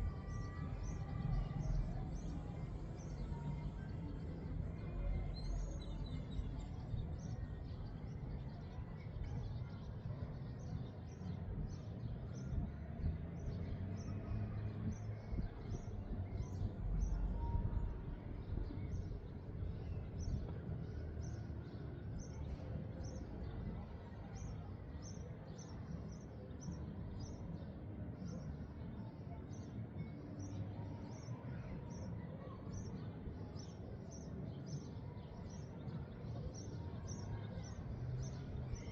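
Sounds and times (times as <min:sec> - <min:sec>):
wind rumbling on microphone: 0:11.5 - 0:24.5.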